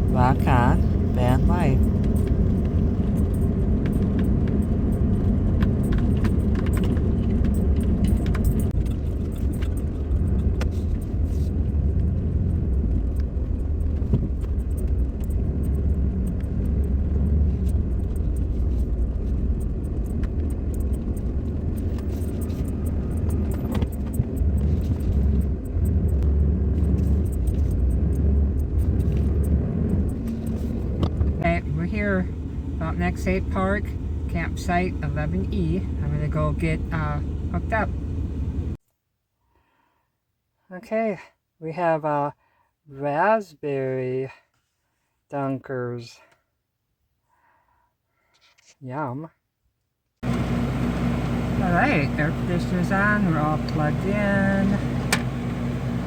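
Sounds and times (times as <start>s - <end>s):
van road and engine rumble: 0.0s - 38.8s, 50.2s - 56.0s
light clicks and rattles: 1.8s - 26.2s.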